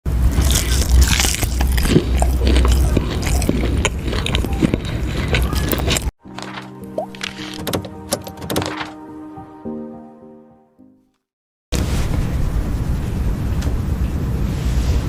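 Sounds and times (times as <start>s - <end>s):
crunchy chewing: 0.2s - 7.6s
music with held notes: 6.2s - 11.2s.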